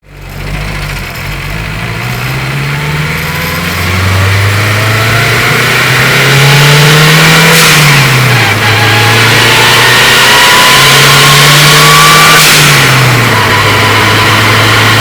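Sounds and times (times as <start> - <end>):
car engine accelerating: 0.0 - 15.0
turbo whine: 8.3 - 15.0.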